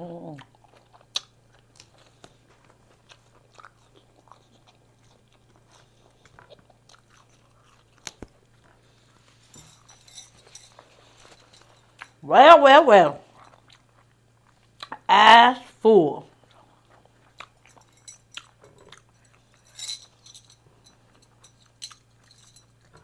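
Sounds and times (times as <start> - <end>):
low steady hum: 0.0 - 23.0
chewing and lip smacks: 0.4 - 12.2, 13.2 - 15.0, 16.3 - 20.2.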